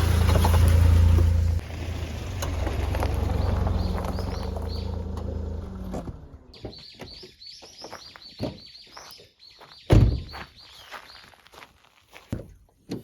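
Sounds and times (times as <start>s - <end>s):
small bird chirping: 3.4s - 5.0s, 6.6s - 11.4s.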